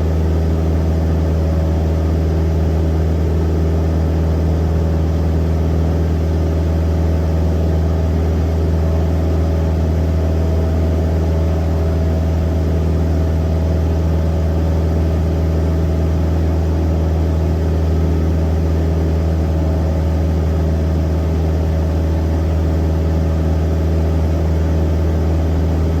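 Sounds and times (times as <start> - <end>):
aircraft engine droning: 14.8 - 26.0.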